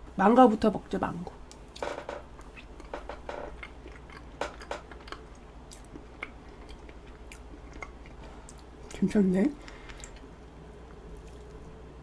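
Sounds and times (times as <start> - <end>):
person chewing: 2.4 - 9.0, 9.6 - 11.8.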